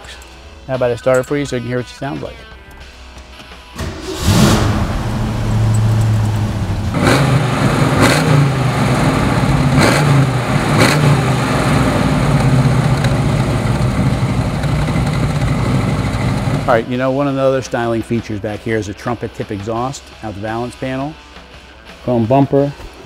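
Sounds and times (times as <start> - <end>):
car engine revving and idling: 3.8 - 16.9.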